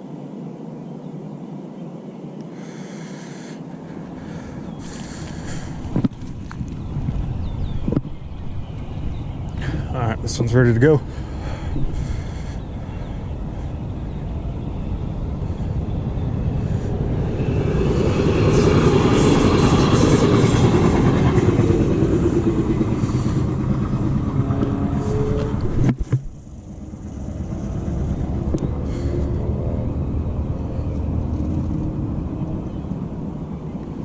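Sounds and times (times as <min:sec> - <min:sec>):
traffic rumble: 0:00.0 - 0:34.0
vehicle passing close by: 0:13.3 - 0:34.0.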